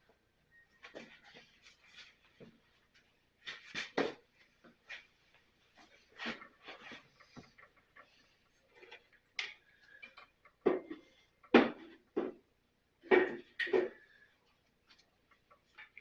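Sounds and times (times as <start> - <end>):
tools knocking and clattering: 8.8 - 14.2.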